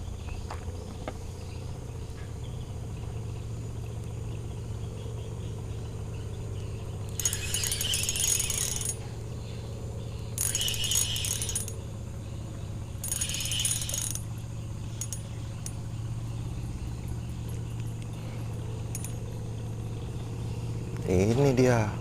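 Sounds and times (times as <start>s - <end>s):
steady low hum: 0.0s - 22.0s
fishing reel whirring and ratcheting: 7.1s - 9.1s, 10.4s - 11.8s, 12.9s - 15.8s, 18.8s - 19.2s.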